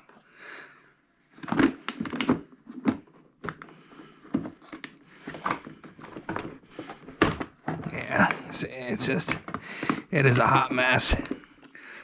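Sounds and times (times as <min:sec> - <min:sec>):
plastic airbox clicks and knocks: 0:01.4 - 0:08.6, 0:09.2 - 0:10.1.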